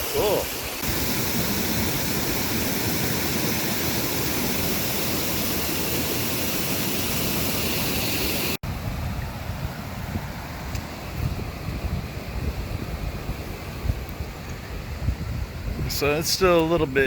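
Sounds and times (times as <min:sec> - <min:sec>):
flowing water rushing: 0:00.0 - 0:08.6
gusting rush: 0:00.0 - 0:10.5.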